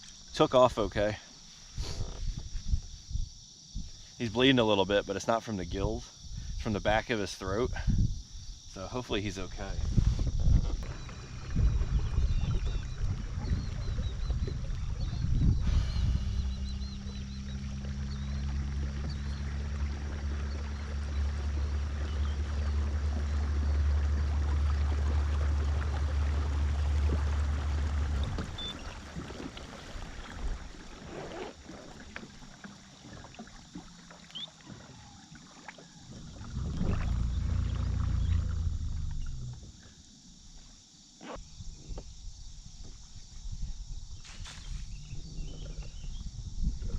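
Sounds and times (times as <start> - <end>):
boat motor droning: 10.5 - 30.9, 31.5 - 39.8
small birds chirping: 10.6 - 19.7.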